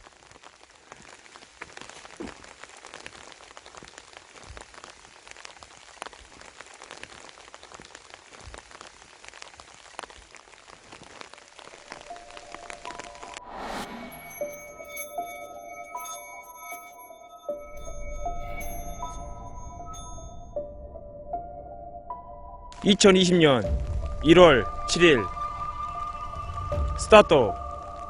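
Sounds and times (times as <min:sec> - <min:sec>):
raindrops ticking close by: 0:00.0 - 0:13.4, 0:22.7 - 0:28.0
rain falling: 0:00.0 - 0:15.1, 0:22.8 - 0:28.0.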